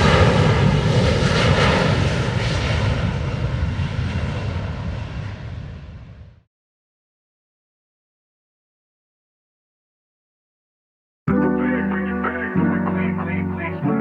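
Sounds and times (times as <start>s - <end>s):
passing plane engine: 0.0s - 6.4s, 11.3s - 14.0s.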